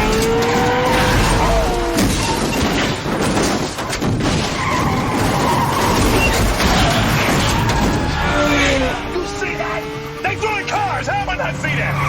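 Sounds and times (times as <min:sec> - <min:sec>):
glass shattering: 0:00.0 - 0:08.0
cars smashing together: 0:00.0 - 0:09.2
tyres squealing: 0:03.8 - 0:12.0.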